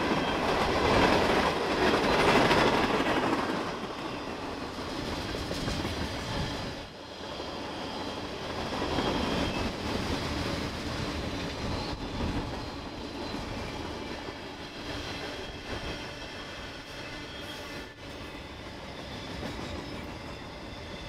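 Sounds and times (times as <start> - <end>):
train wheels rumbling and clattering: 0.0 - 21.0
faint high wheel squeal: 3.9 - 4.6, 6.1 - 10.6, 11.2 - 21.0.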